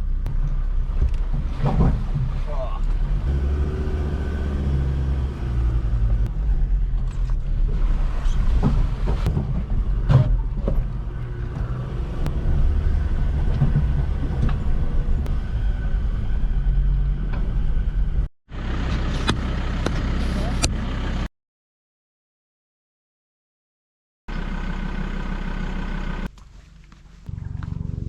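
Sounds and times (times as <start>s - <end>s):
vehicle engine and tyres rumbling: 0.0s - 21.3s, 24.3s - 28.0s
knocks and rattles: 8.2s - 15.3s.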